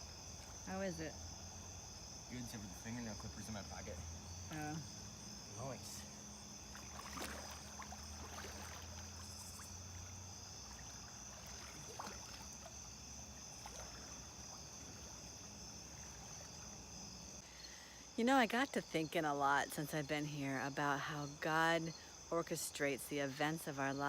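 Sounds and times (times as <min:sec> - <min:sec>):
crickets chirring: 0:00.0 - 0:24.0
water sloshing and splashing: 0:04.9 - 0:17.4.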